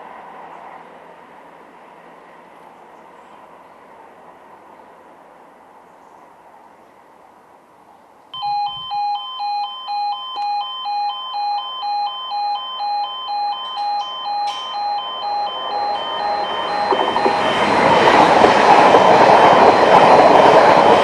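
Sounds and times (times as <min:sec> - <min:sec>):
level crossing two-tone alarm: 0:08.4 - 0:21.0.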